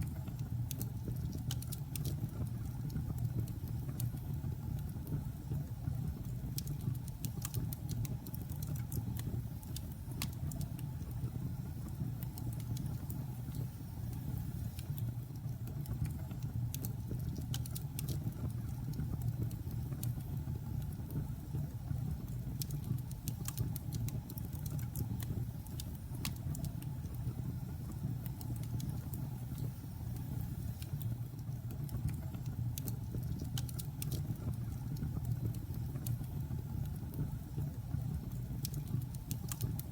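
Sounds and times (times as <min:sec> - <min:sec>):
wood crackling and popping: 0:14.8 - 0:21.2, 0:28.0 - 0:37.3, 0:38.2 - 0:39.9.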